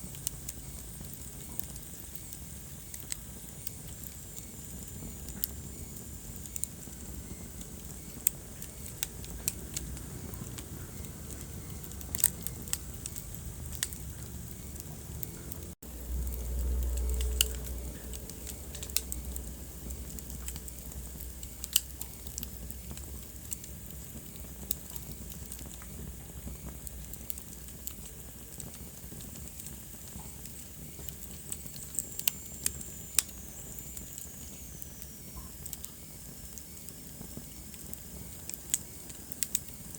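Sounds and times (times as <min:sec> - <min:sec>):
wood fire crackling and popping: 0:00.0 - 0:39.9
low rumble: 0:09.2 - 0:23.4.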